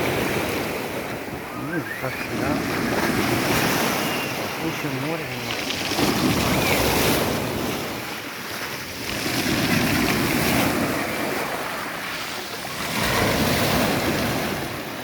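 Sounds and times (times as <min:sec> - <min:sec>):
wind buffeting microphone: 0:00.0 - 0:12.1
waves washing onto shore: 0:00.0 - 0:15.0.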